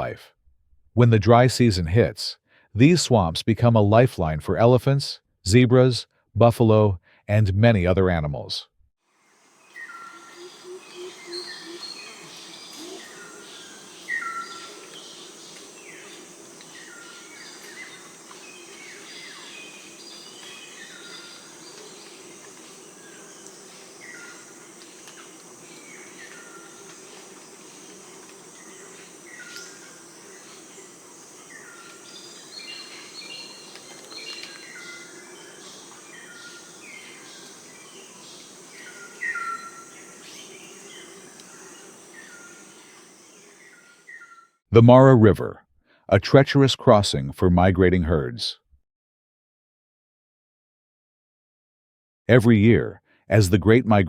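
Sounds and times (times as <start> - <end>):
birds chirping: 9.4 - 44.4.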